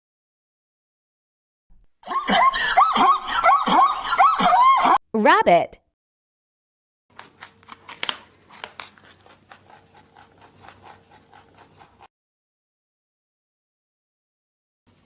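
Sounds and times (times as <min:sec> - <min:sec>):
rabbit chewing: 0:07.1 - 0:12.1.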